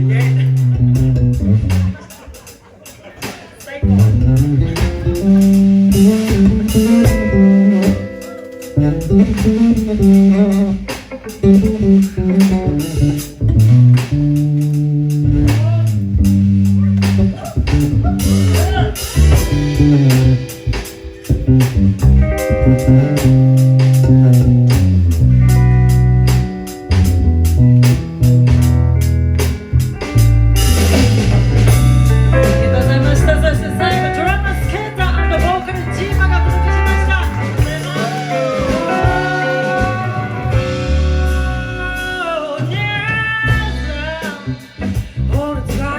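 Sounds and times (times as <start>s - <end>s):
bass guitar: 0.0s - 2.9s, 3.6s - 45.9s
guitar playing: 0.0s - 45.1s
live band music: 0.0s - 45.9s
person singing: 32.1s - 44.6s, 45.2s - 45.9s.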